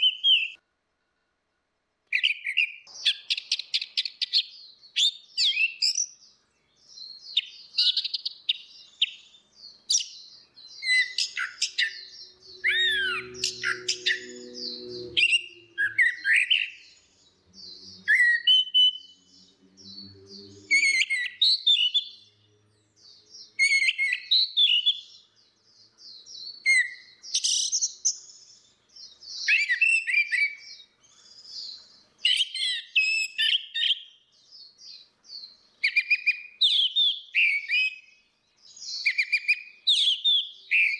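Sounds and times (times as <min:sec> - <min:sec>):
thrush singing: 0:10.9 - 0:21.4.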